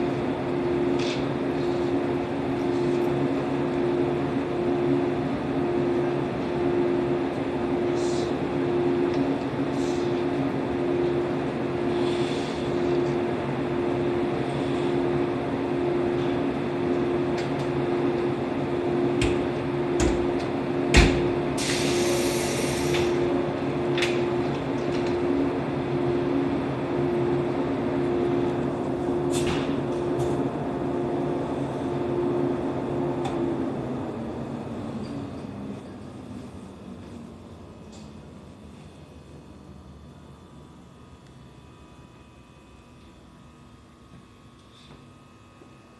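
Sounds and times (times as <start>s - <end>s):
electric train equipment humming: 0.0s - 45.9s
compressed air hiss: 21.5s - 23.2s.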